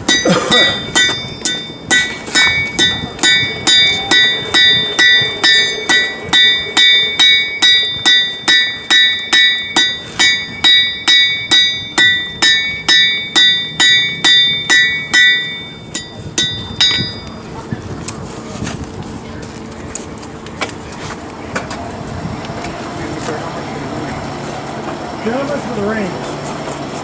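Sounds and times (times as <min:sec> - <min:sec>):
hammer striking metal on anvil: 0:00.0 - 0:17.4.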